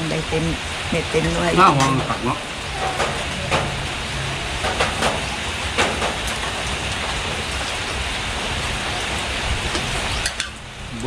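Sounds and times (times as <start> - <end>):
heavy rain hissing: 0.0 - 11.0.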